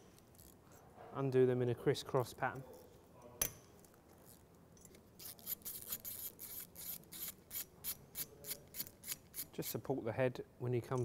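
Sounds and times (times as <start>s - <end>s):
ratchet wrench clicking: 5.2s - 9.5s.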